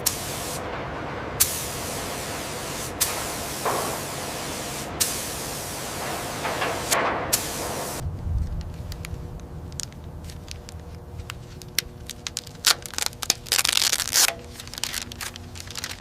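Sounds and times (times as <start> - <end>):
hiss: 0.0 - 0.6, 1.4 - 8.0
faint steady hum: 0.0 - 16.0
low rumble: 6.0 - 13.1
sharp cracks and crackles: 6.0 - 16.0.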